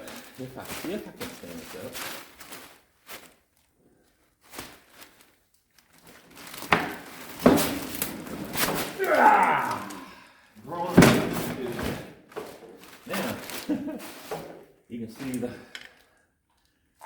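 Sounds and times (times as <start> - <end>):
scraping and handling noise: 0.0 - 10.1, 10.7 - 16.0
heavy knocks and thumps: 10.8 - 12.8.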